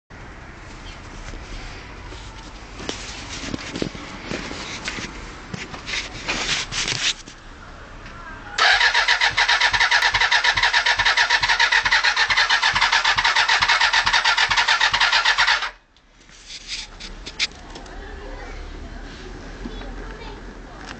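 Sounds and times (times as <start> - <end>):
clicks and rustles: 2.1 - 7.4, 16.2 - 18.0
starter motor cranking engine: 8.6 - 15.8.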